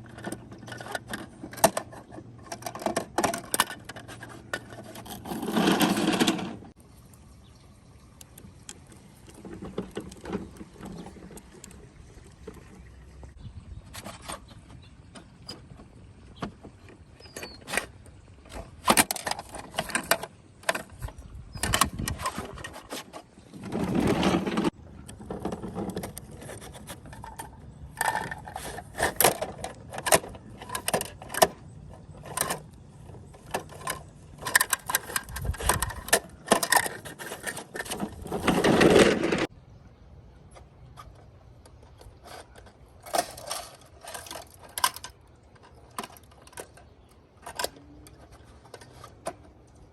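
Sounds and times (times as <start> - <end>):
toy rattling and scraping: 0.0 - 6.8, 17.2 - 39.5, 41.0 - 49.9
plastic toy clicks and knocks: 24.5 - 39.5.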